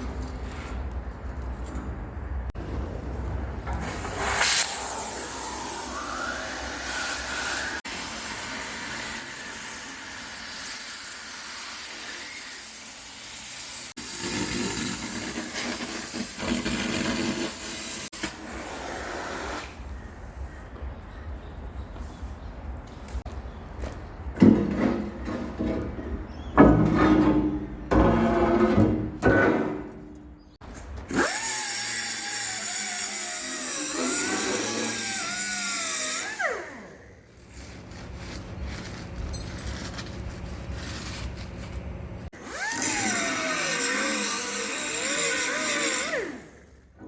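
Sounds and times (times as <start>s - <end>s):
angle grinder whining on steel: 5.0s - 11.2s, 31.1s - 37.0s, 42.4s - 46.6s.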